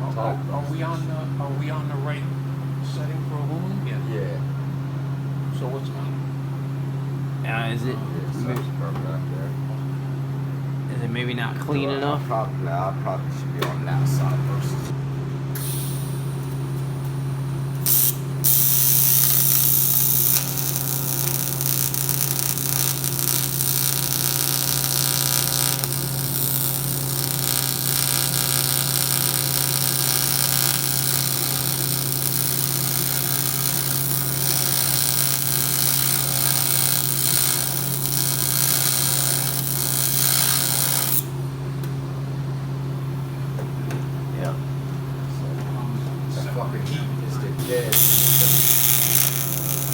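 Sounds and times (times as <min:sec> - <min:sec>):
welder hum: 0:15.5 - 0:42.0, 0:47.3 - 0:49.9
welding arc hissing and crackling: 0:15.6 - 0:41.3, 0:47.6 - 0:49.9.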